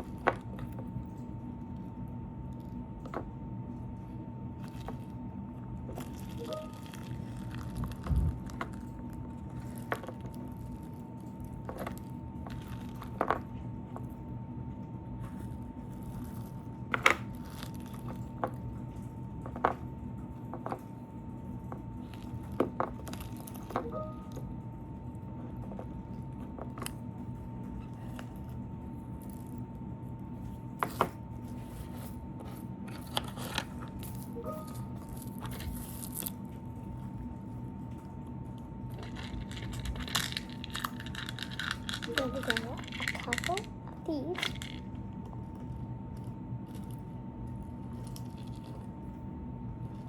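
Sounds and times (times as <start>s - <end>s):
steady low hum: 0.0s - 50.0s
slime squishing by hand: 5.8s - 13.6s
faint high whine: 6.0s - 8.7s, 33.9s - 36.4s.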